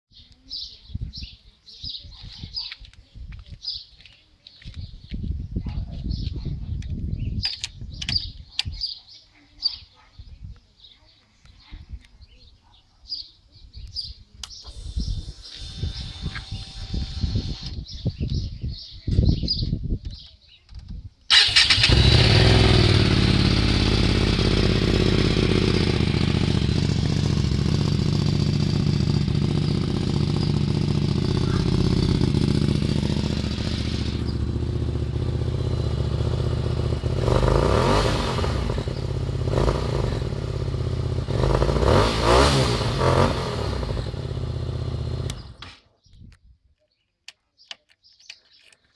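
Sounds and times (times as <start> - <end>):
motorcycle engine starting and revving: 14.4 - 17.9, 21.3 - 45.8.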